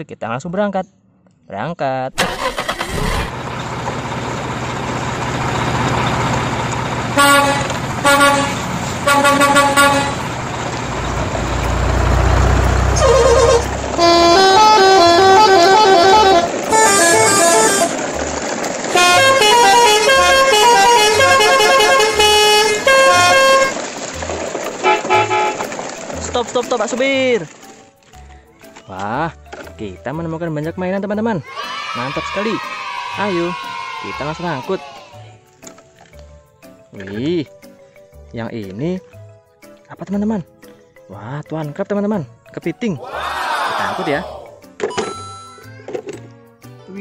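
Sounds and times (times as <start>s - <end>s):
truck engine running: 2.2s - 27.8s
truck horn toots: 7.0s - 11.3s, 12.0s - 18.1s, 18.9s - 23.9s, 24.8s - 25.8s
multi-tone horn tune: 7.1s - 10.4s, 12.9s - 18.0s, 18.9s - 23.8s, 24.8s - 25.7s.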